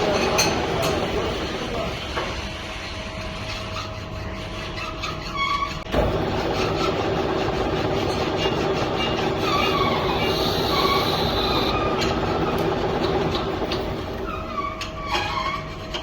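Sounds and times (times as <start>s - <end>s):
lathe cutting metal: 5.9s - 14.8s
high tool whine: 7.6s - 12.6s.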